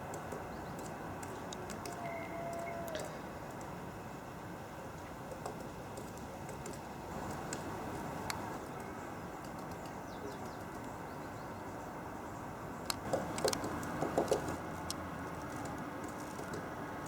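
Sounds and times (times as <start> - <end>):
woodpecker tapping: 0.0 - 3.7, 12.9 - 16.7
background traffic noise: 0.0 - 17.0.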